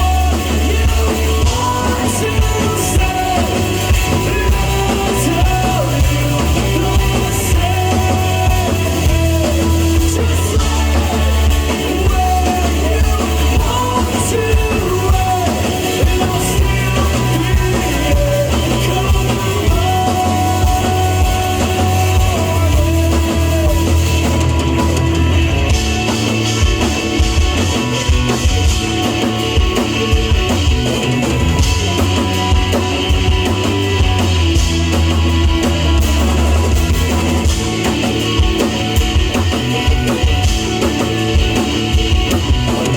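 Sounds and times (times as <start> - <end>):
person singing: 0.0 - 25.7
rock band playing live: 0.0 - 42.9.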